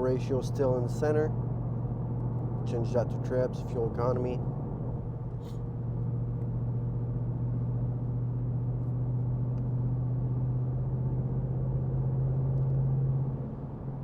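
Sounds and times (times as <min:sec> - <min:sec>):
car engine droning: 0:00.0 - 0:14.0
road noise: 0:00.0 - 0:14.0.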